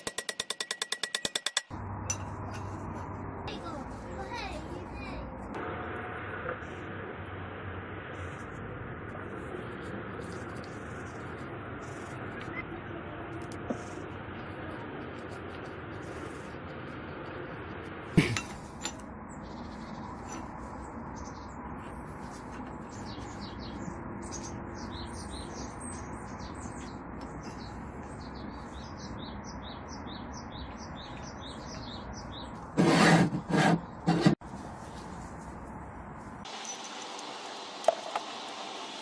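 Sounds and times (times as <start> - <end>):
small birds chirping: 19.3 - 32.7.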